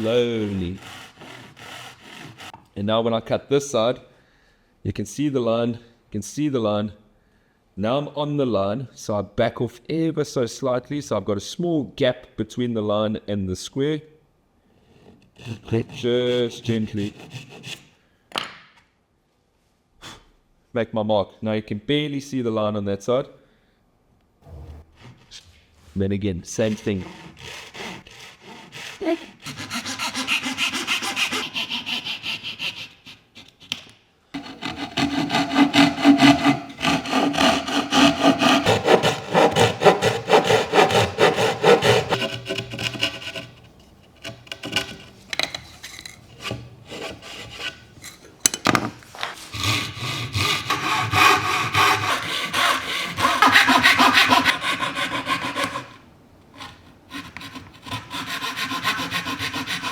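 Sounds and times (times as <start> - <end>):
hand saw cutting wood: 0.0 - 2.7, 15.0 - 17.9, 26.6 - 56.0, 56.6 - 59.9.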